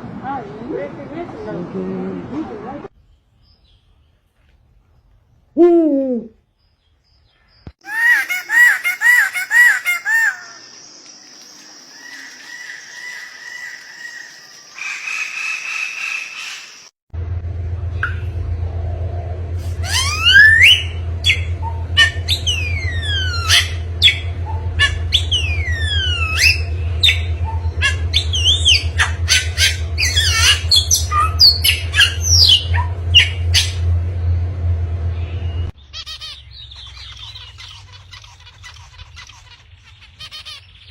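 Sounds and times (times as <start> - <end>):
bird calls: 6.1 - 16.9, 19.6 - 33.8, 35.2 - 40.9
steady low hum: 17.2 - 40.4
bird whistling fast notes: 19.6 - 33.8.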